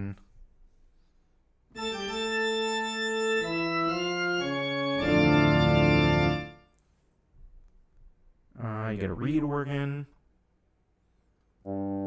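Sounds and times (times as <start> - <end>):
pipe organ chords: 1.7 - 6.7, 11.6 - 12.0.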